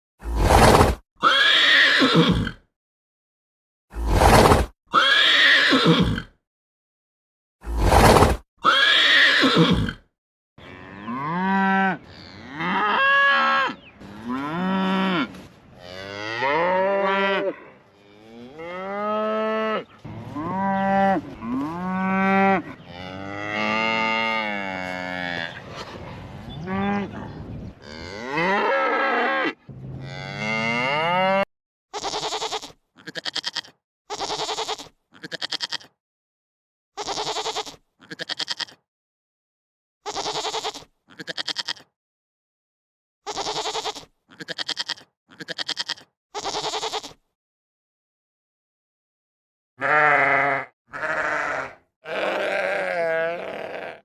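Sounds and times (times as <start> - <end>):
short quavering bleats: 1.2 - 2.6, 4.9 - 6.3, 8.6 - 15.3, 27.8 - 36.0, 37.0 - 38.8, 40.0 - 41.9, 43.2 - 47.2, 49.8 - 54.0
cattle mooing: 10.6 - 25.6, 27.8 - 31.5, 49.8 - 54.0.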